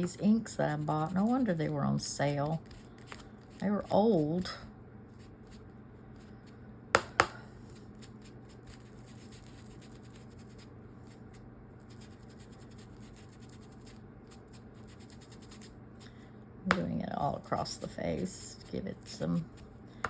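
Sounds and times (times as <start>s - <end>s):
scratchy rubbing on cloth: 11.8s - 15.7s.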